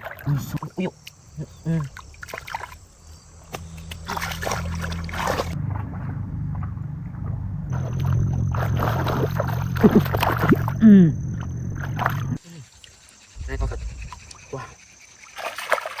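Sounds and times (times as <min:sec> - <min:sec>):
water splashing by hands: 0:01.8 - 0:02.9, 0:03.5 - 0:06.7, 0:07.7 - 0:12.4, 0:15.3 - 0:16.0
low motor hum: 0:03.2 - 0:12.4, 0:13.4 - 0:14.7.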